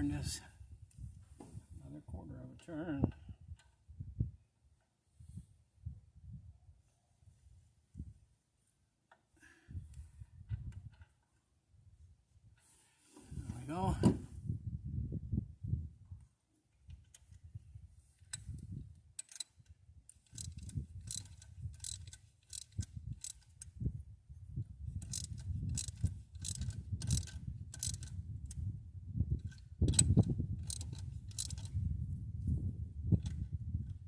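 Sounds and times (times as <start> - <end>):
ratchet wrench clicking: 19.2 - 23.7, 25.0 - 28.2, 29.4 - 31.7.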